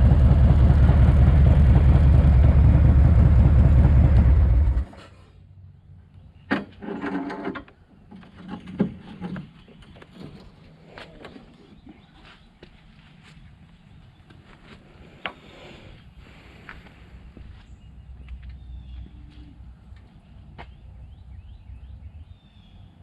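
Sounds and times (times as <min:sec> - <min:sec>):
motorcycle engine running: 0:00.0 - 0:04.9.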